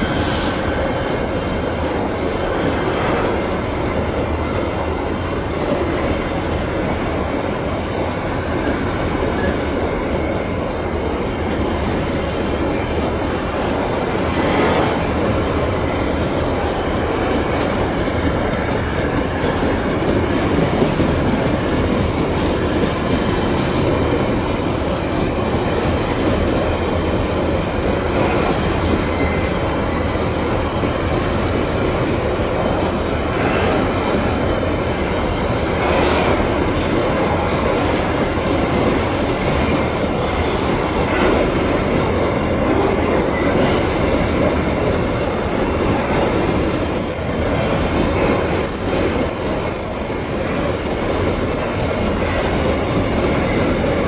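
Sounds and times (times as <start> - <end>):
clickety-clack over rail joints: 0.0 - 54.0
train wagons rumbling past: 0.0 - 54.0
faint wheel squeal: 46.6 - 47.7.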